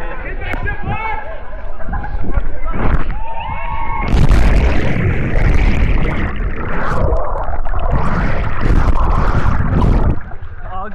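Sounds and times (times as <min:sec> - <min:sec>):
wind rushing on microphone: 0:01.9 - 0:10.4
churning water: 0:04.1 - 0:10.9.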